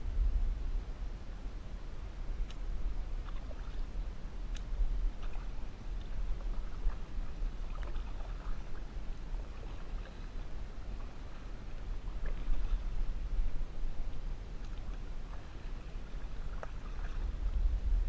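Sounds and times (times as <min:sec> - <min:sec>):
steady low rumble: 0:00.0 - 0:18.0
water lapping and splashing: 0:01.9 - 0:18.0
light ticks: 0:02.4 - 0:02.7, 0:04.5 - 0:06.6, 0:14.1 - 0:15.4.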